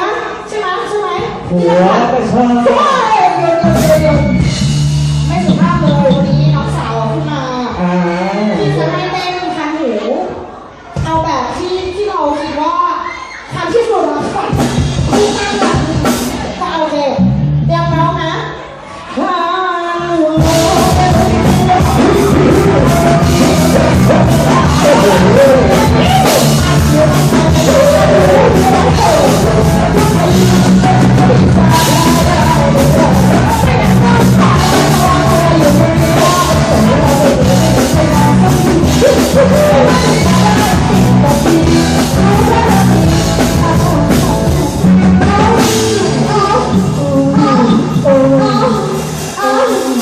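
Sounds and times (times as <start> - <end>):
live band playing dance song: 0.0 - 12.1, 12.7 - 50.0
drum kit: 1.2 - 7.3, 14.2 - 18.1, 20.3 - 50.0
person singing: 20.4 - 50.0.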